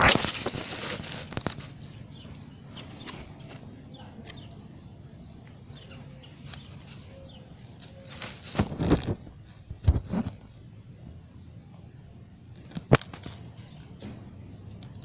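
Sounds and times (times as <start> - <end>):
rustling and bumping: 0.0 - 1.9, 6.4 - 10.4
faint bird chirps: 1.6 - 8.6.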